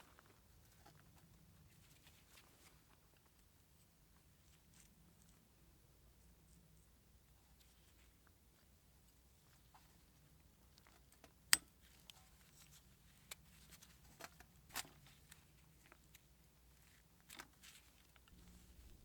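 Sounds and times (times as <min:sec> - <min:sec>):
low steady hum: 0:18.3 - 0:19.0.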